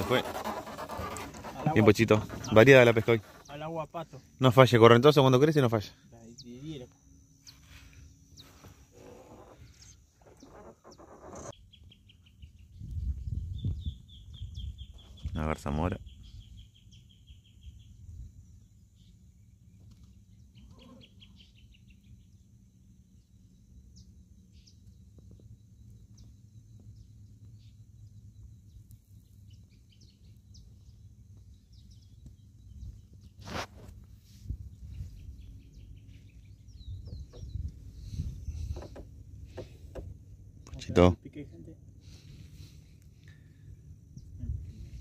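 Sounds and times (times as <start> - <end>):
small birds chirping: 0.8 - 45.0
wind rumble on microphone: 12.4 - 15.4, 32.2 - 39.6, 44.2 - 45.0.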